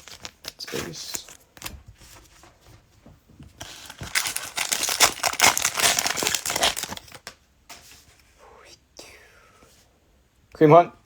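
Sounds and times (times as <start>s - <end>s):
cellophane wrapper crinkling: 0.0s - 1.7s, 3.6s - 7.3s.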